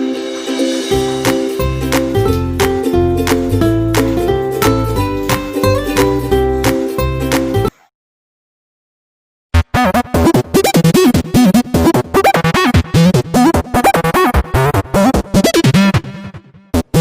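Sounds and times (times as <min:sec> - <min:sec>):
choppy tune of bending notes: 0:00.0 - 0:07.7.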